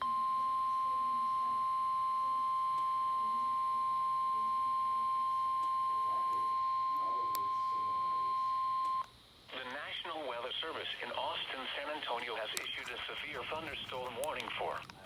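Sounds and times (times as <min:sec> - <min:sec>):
steady alarm tone: 0:00.0 - 0:09.0.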